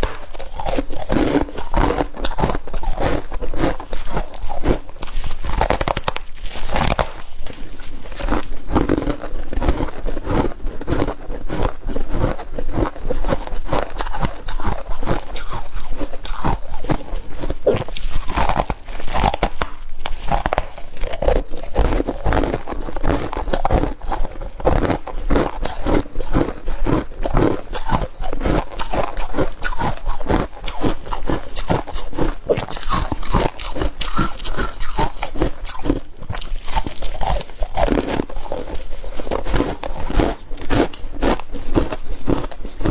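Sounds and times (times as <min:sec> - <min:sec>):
crunching ice flakes: 0:00.0 - 0:42.9.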